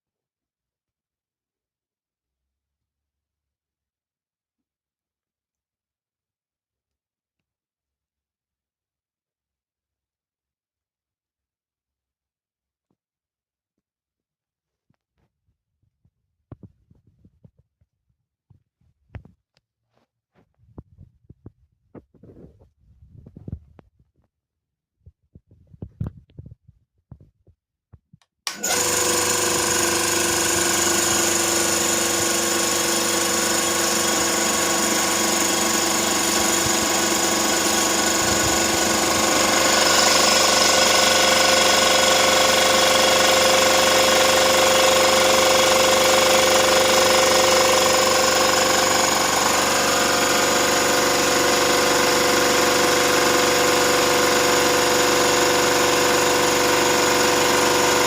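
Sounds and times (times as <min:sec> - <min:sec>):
air compressor running: 0:28.5 - 0:58.0.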